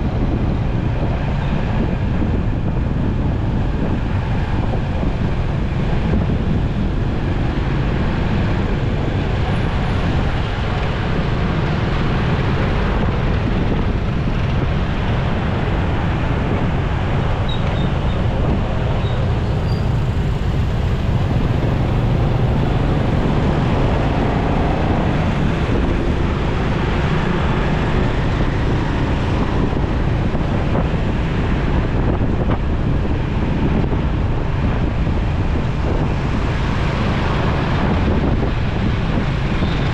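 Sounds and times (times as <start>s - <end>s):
motorcycle road noise: 0.0s - 39.9s
wind rush on microphone: 0.0s - 39.9s.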